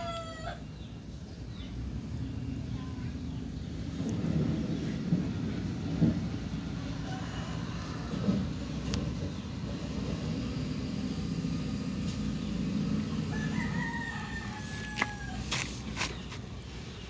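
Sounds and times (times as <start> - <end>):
rooster crowing: 0.0 - 0.7, 6.9 - 8.5, 13.1 - 15.8.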